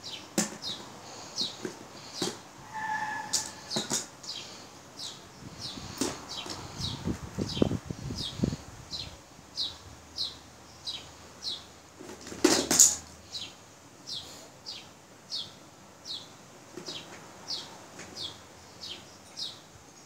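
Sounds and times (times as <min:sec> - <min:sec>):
small bird chirping: 0:03.4 - 0:11.7, 0:13.2 - 0:20.0.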